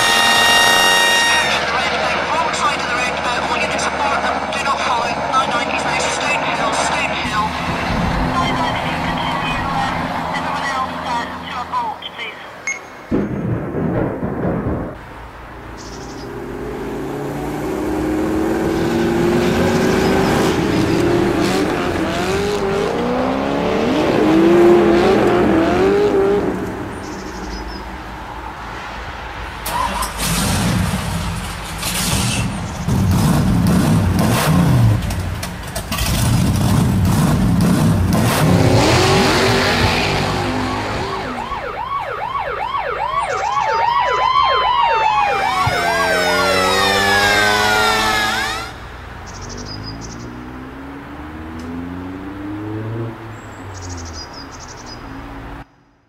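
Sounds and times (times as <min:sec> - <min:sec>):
engines revving: 0:00.0 - 0:12.6, 0:15.1 - 0:55.7
rising and falling wail: 0:38.4 - 0:48.8.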